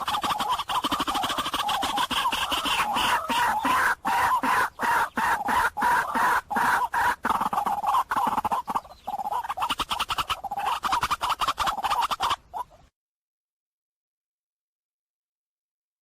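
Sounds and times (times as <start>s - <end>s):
waterhen croaking calls: 0.0s - 12.9s.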